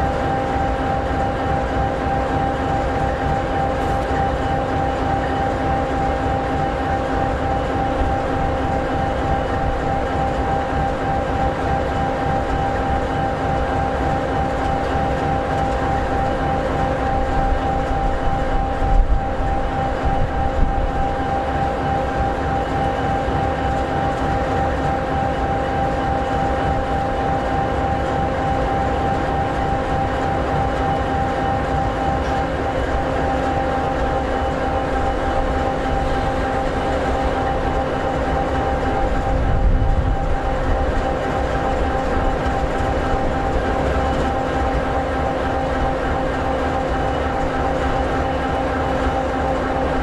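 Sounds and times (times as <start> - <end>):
diesel locomotive idling: 0.0 - 50.0.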